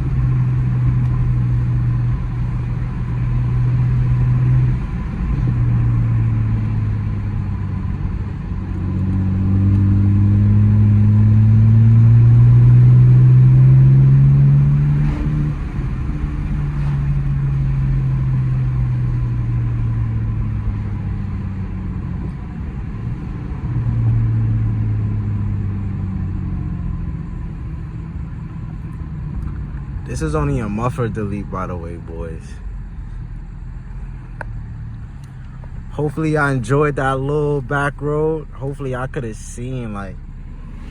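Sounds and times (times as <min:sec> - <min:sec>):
car engine revving hard: 0:00.0 - 0:26.6, 0:39.8 - 0:40.9.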